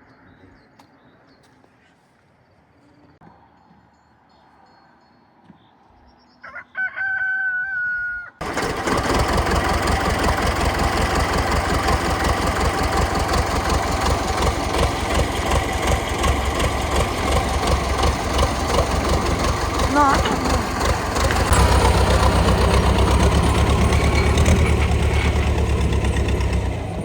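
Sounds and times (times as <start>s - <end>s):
rooster crowing: 6.4s - 8.4s
engine running with low pulsing: 8.4s - 27.0s.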